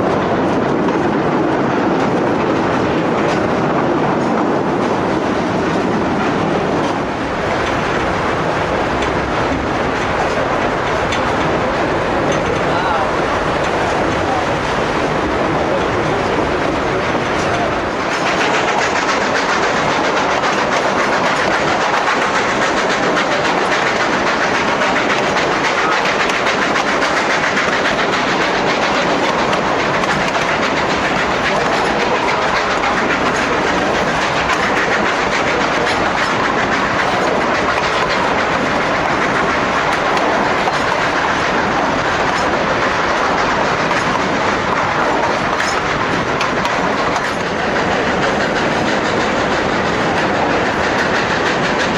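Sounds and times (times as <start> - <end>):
train wheels clattering on rails: 0.0 - 51.9.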